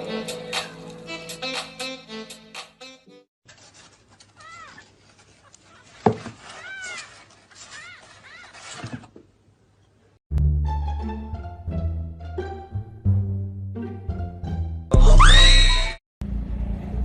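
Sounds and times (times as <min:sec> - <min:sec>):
music: 0:00.0 - 0:03.3, 0:10.3 - 0:15.3.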